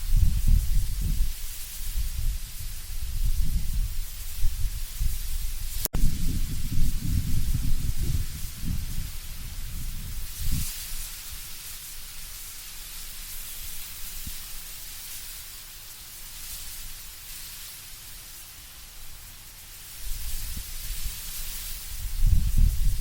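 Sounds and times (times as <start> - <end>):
low rumbling wind gust: 0.0 - 10.7, 21.8 - 23.0
wind rustling leaves: 0.0 - 23.0.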